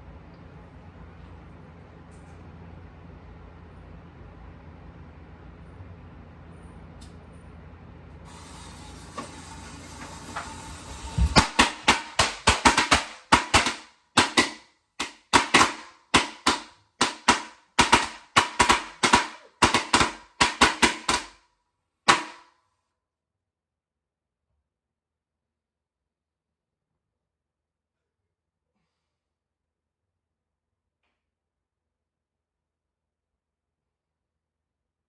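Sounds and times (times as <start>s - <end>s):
firecrackers banging: 8.4s - 21.3s.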